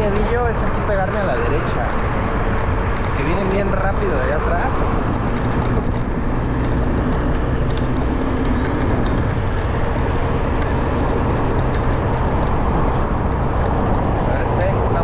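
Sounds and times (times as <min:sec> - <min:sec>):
road traffic passing: 0:00.0 - 0:15.0
wind on microphone: 0:04.6 - 0:15.0.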